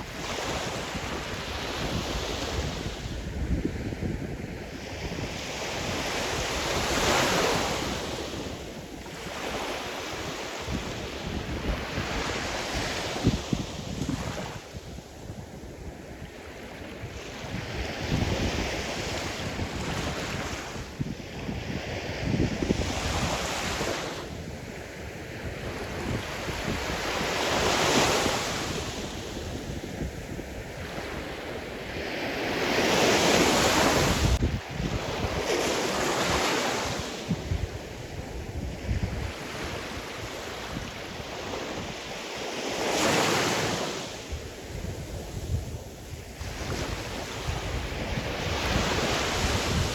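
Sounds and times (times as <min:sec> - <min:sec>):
waves breaking: 0:30.3 - 0:37.6.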